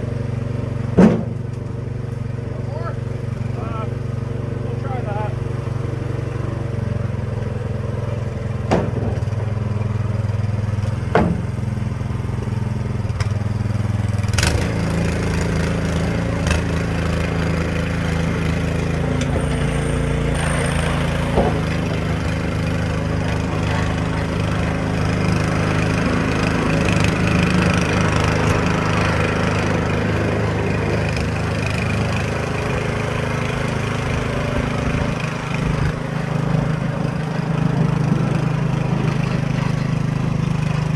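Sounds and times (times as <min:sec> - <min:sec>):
small engine running: 0:00.0 - 0:40.9
sharp knocks: 0:01.0 - 0:01.5, 0:08.7 - 0:09.3, 0:10.9 - 0:11.6, 0:19.2 - 0:22.6.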